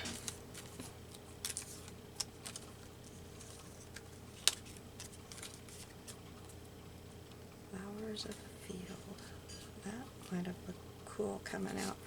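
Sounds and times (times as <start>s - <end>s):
paper rustling: 0.0s - 6.2s.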